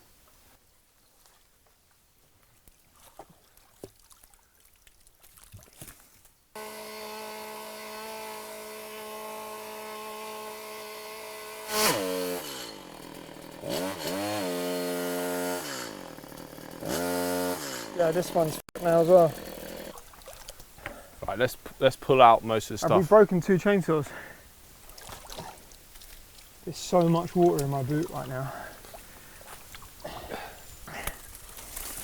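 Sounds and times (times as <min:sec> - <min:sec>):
small chainsaw revving: 0:06.6 - 0:20.0.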